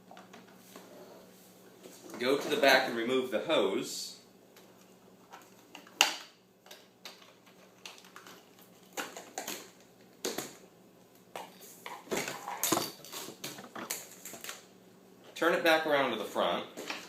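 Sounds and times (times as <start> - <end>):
plastic knocks and rattles: 12.0 - 14.5.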